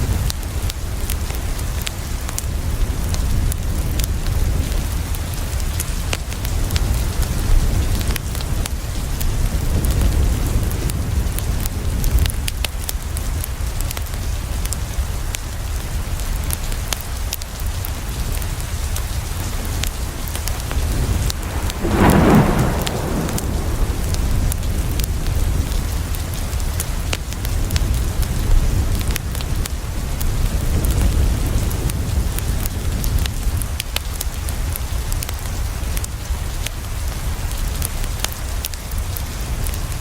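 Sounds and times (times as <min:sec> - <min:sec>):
heavy rain: 0:00.0 - 0:40.0
thunder rumble: 0:20.1 - 0:26.6.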